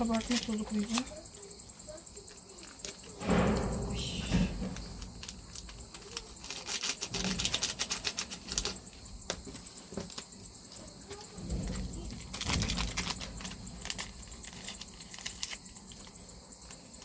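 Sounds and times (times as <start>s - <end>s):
steady high hiss: 0.0s - 17.0s
paper packet tearing: 5.2s - 8.8s.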